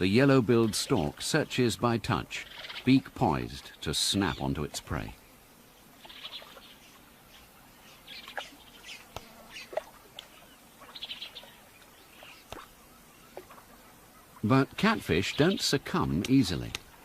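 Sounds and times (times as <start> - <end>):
birds chirping: 0.0 - 17.0
sharp clicks: 16.2 - 16.9.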